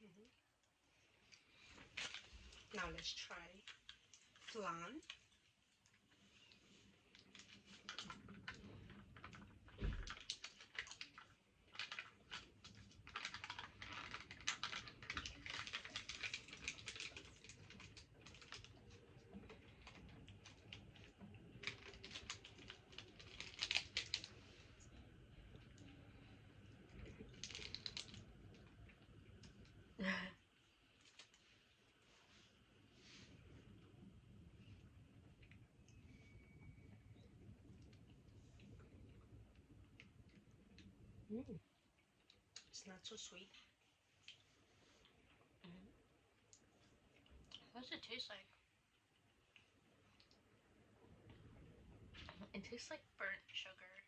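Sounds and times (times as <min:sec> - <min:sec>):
plastic packaging crinkling: 0:01.5 - 0:05.2, 0:07.1 - 0:26.2, 0:26.8 - 0:29.7.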